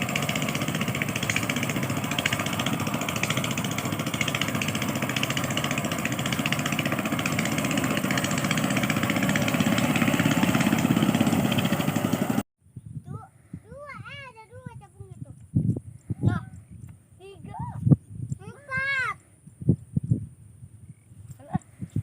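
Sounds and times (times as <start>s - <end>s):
engine running with rapid pulse: 0.0s - 12.5s.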